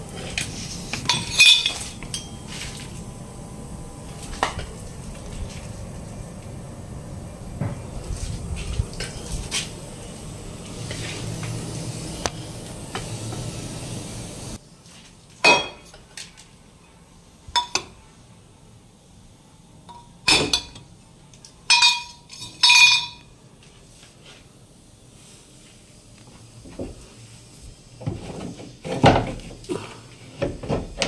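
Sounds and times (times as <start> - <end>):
metal tools clinking: 1.1 - 2.4, 21.7 - 23.2.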